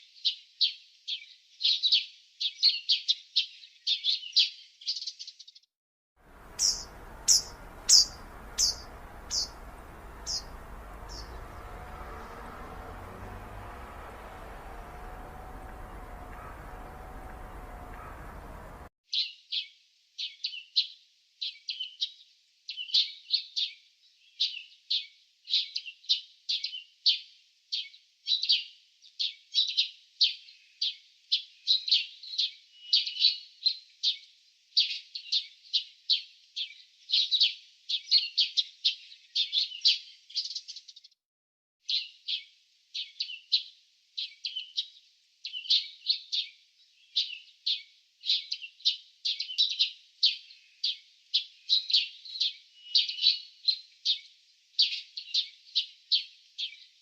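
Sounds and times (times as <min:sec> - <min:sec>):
small birds chirping: 0:00.2 - 0:05.6, 0:06.3 - 0:19.6, 0:34.1 - 0:41.1, 0:41.8 - 0:57.0.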